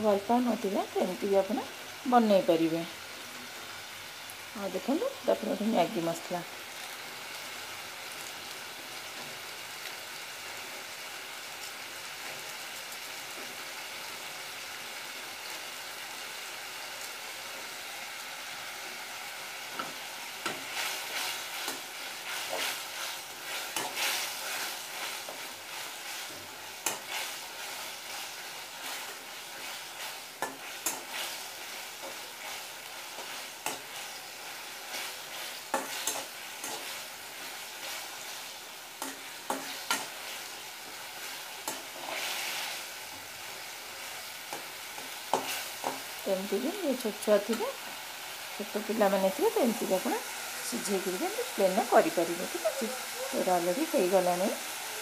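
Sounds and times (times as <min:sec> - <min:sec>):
noodles sizzling in oil: 0:00.0 - 0:55.0
scraping and stirring in pan: 0:19.8 - 0:46.2.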